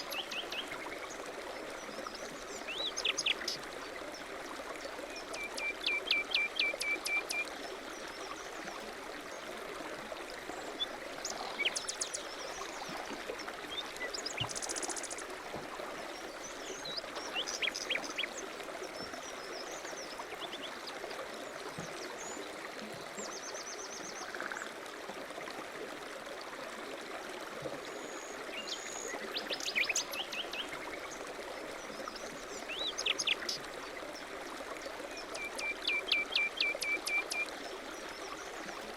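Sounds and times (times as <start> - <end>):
running water: 0.0 - 38.9
songbirds chirping and trilling: 15.9 - 21.1.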